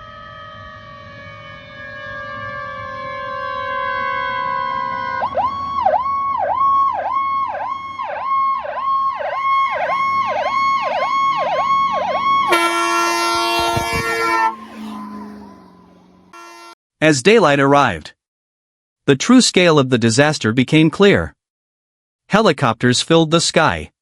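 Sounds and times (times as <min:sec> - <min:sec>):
emergency siren yelping: 0:00.0 - 0:16.8
loud horn blast: 0:12.4 - 0:16.8.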